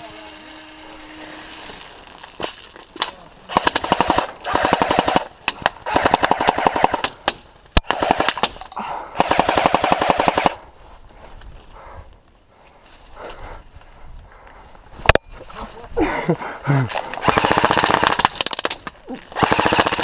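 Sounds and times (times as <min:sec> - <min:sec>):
airsoft guns firing bursts: 0:03.5 - 0:07.2, 0:07.8 - 0:08.6, 0:09.2 - 0:10.6, 0:17.2 - 0:18.7, 0:19.4 - 0:20.0.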